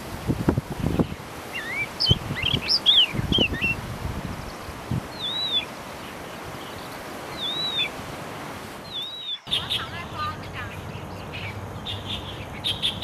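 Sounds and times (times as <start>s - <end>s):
small bird chirping: 0.8s - 8.0s, 8.8s - 10.0s
rising-and-falling bird whistle: 1.5s - 3.8s, 5.1s - 5.7s, 7.3s - 8.0s, 8.8s - 9.8s.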